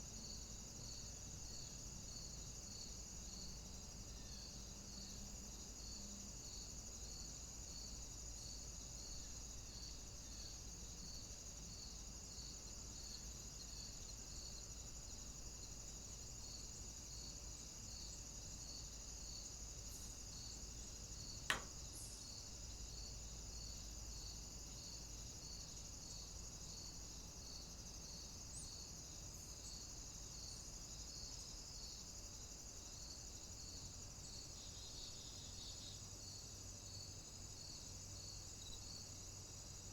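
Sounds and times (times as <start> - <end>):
cicadas chorus: 0.0 - 39.9
sharp click: 21.5 - 21.9.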